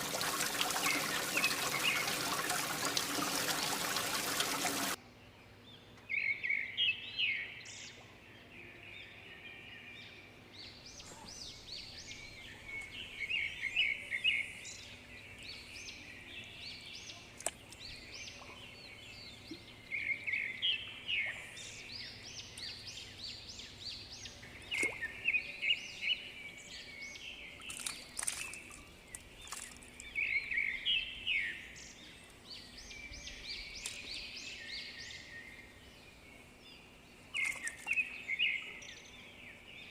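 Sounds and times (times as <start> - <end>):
birds chirping and singing: 0.0 - 5.0
faint steady background noise: 0.0 - 39.9.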